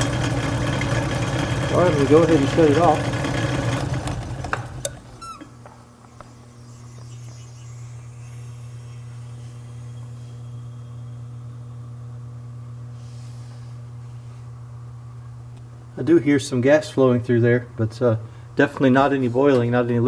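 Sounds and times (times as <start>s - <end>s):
steady low hum: 1.3s - 20.0s
compressor squeaks coasting down: 1.7s - 11.6s.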